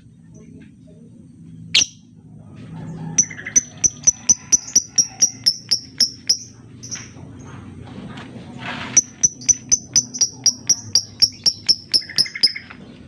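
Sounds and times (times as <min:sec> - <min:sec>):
steady low hum: 0:00.0 - 0:13.0
lovebird chirping: 0:01.7 - 0:02.1, 0:03.2 - 0:07.2, 0:09.0 - 0:12.8.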